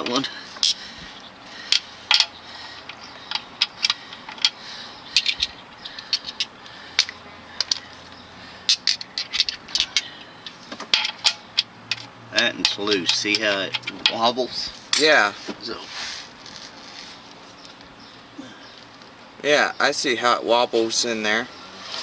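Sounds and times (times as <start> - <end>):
metal hand tools clinking: 1.7 - 4.6, 5.2 - 8.0, 8.7 - 15.3.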